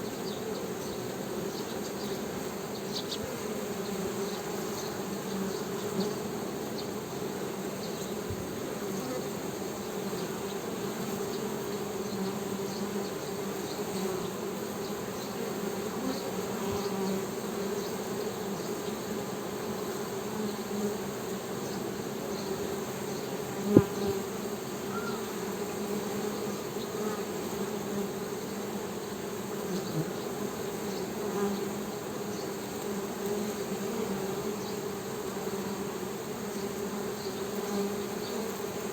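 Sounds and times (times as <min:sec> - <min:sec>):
bees humming: 0:00.0 - 0:38.9.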